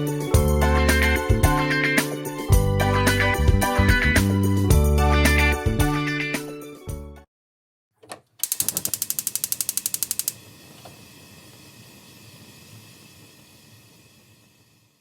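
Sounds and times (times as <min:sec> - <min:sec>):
rapid regular clicks: 0:08.4 - 0:10.4
brief mechanical sound: 0:08.4 - 0:11.0.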